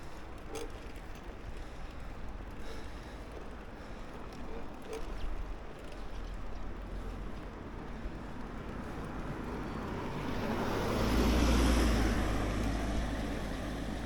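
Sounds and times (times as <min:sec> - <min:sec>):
vehicle passing by: 0:08.6 - 0:14.0.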